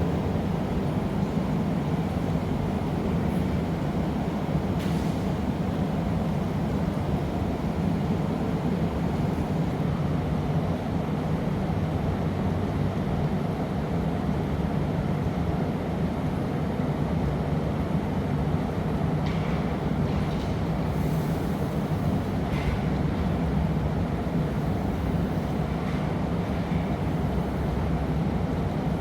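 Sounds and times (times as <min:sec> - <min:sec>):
furnaces and burners roaring: 0:00.0 - 0:10.3, 0:17.1 - 0:29.0.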